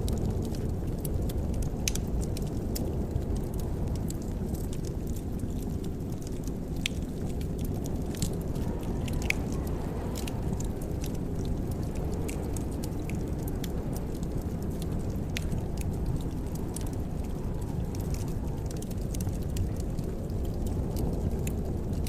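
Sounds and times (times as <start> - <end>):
fire crackles and pops: 0.0 - 22.0
low rumble of flames: 0.0 - 22.0.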